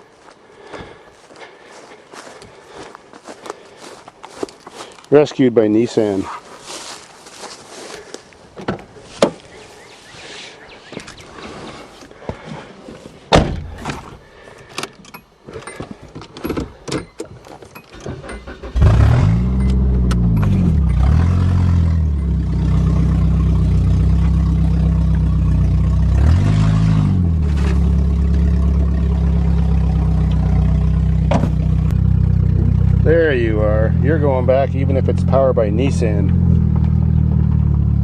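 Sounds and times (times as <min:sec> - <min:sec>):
car engine starting and revving: 0:17.9 - 0:38.0.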